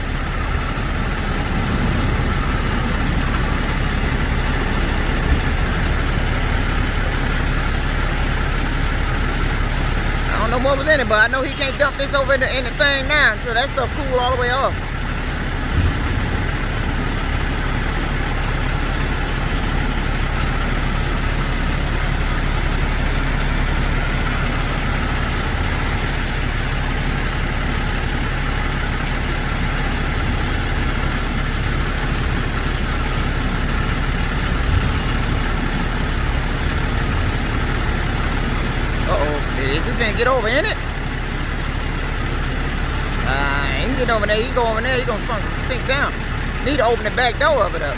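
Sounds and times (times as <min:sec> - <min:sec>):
diesel truck engine idling: 0:00.0 - 0:47.9.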